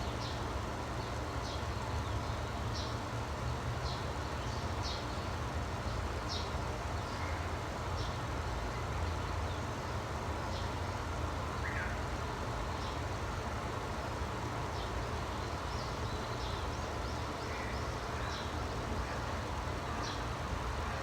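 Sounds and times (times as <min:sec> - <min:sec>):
small birds chirping: 0:14.7 - 0:20.3.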